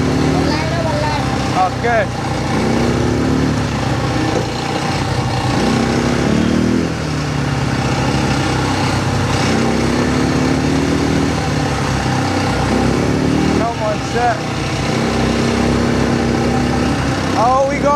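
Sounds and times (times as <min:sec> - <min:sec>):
quad bike engine revving: 0:00.0 - 0:17.9.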